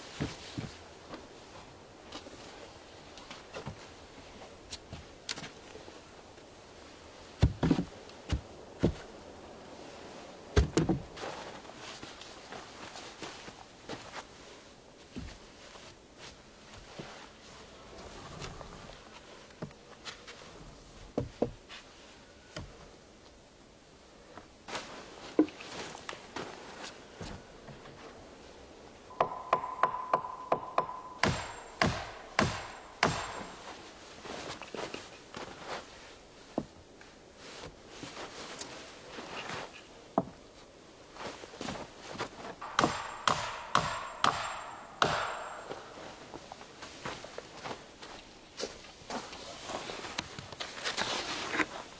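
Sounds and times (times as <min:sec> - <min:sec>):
objects knocking and tapping: 0:29.1 - 0:33.6
axe chopping wood: 0:29.2 - 0:33.6, 0:42.6 - 0:45.9.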